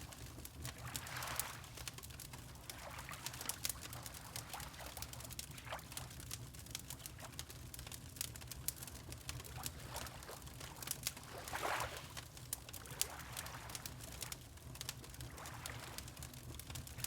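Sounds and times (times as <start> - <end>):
water lapping gently: 0.0 - 7.5, 8.9 - 17.0
wood fire crackling and popping: 6.2 - 9.8, 10.6 - 11.3.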